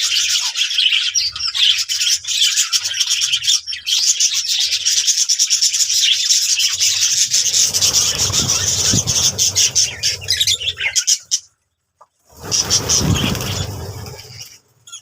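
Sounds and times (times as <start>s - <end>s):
budgerigars chattering and chirping: 0.0s - 11.5s
low rubbing scraping noise: 6.6s - 11.3s, 12.2s - 15.0s.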